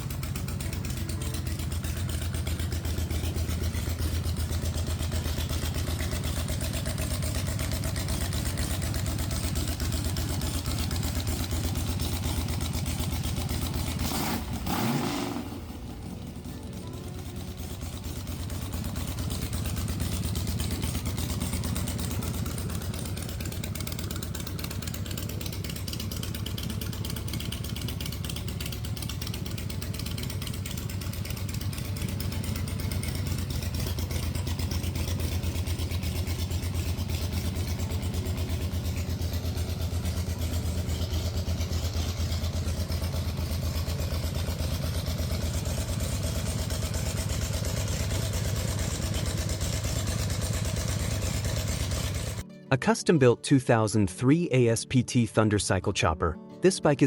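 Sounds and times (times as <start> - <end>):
motorcycle engine running: 0.0 - 52.5.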